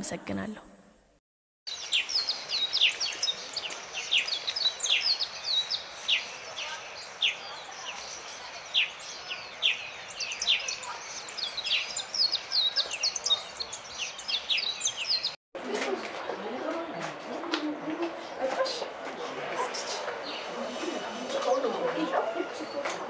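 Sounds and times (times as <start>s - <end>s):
small birds chirping: 1.7s - 15.4s, 19.6s - 23.0s
outdoor background hiss: 1.7s - 15.8s.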